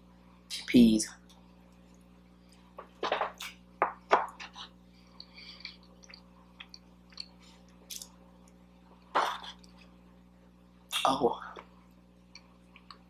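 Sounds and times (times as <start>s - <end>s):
chewing and wet mouth noises: 4.4s - 9.9s.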